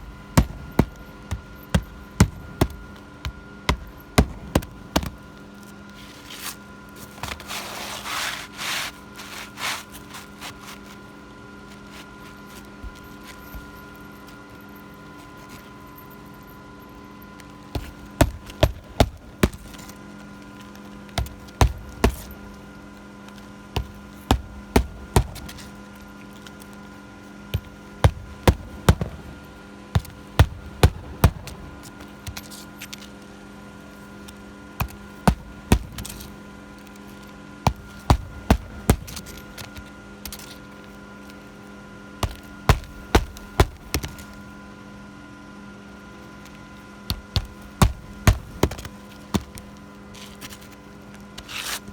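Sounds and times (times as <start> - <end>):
steady background hum: 0.0 - 51.9
hammer driving nails into shingles: 0.1 - 5.2, 23.8 - 25.7, 42.2 - 44.4, 47.1 - 49.7.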